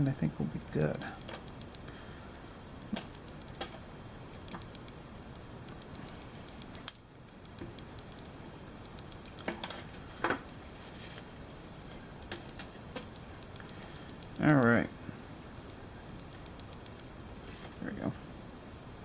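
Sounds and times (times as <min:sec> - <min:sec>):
faint steady hiss: 0:00.0 - 0:19.0
sharp little clicks and pops: 0:02.8 - 0:05.0, 0:05.6 - 0:10.6.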